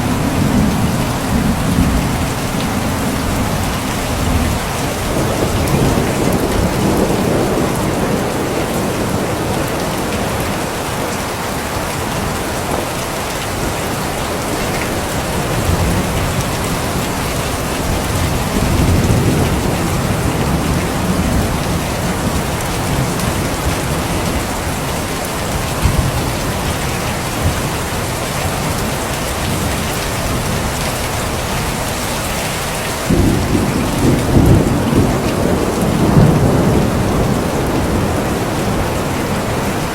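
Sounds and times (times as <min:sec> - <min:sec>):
thunder rumbling: 0:00.0 - 0:31.7, 0:33.1 - 0:39.9
steady rain: 0:00.0 - 0:39.9.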